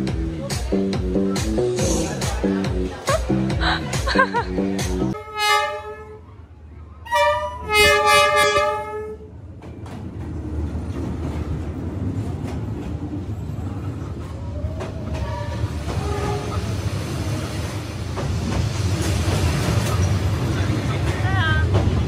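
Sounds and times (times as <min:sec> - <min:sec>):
train horn blast: 0:05.2 - 0:06.3, 0:07.0 - 0:09.3, 0:15.2 - 0:16.6
train wheels clacking on rails: 0:09.5 - 0:22.0.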